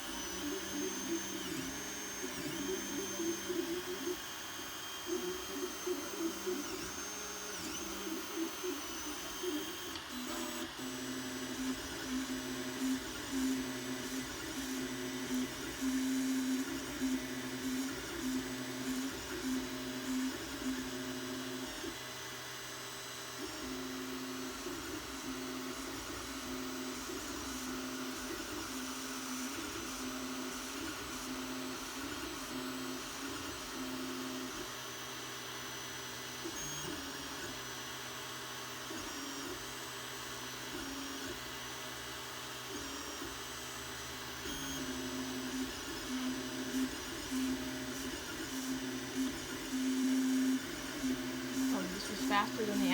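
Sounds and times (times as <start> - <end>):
stepper motors whining: 0.0 - 21.9, 44.5 - 52.9.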